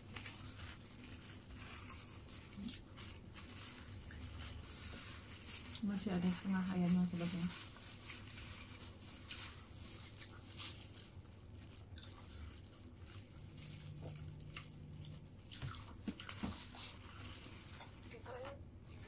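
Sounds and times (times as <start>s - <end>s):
chewing and biting: 9.6s - 18.0s.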